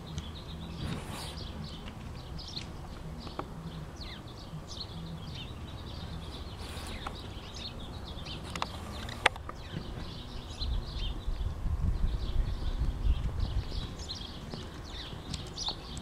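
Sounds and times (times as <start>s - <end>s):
low outdoor rumble: 0.0s - 16.0s
small birds chirping: 0.0s - 16.0s.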